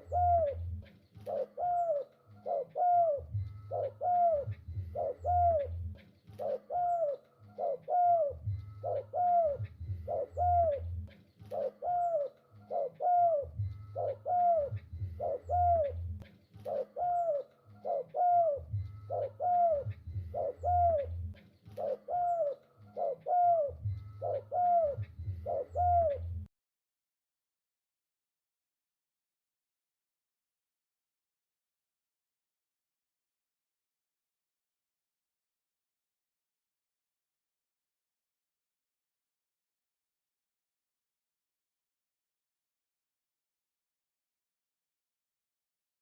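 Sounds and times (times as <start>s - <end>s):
dove cooing: 0.0s - 26.5s
low hum: 3.1s - 6.4s, 8.1s - 11.6s, 12.5s - 16.7s, 17.8s - 21.8s, 23.2s - 26.5s.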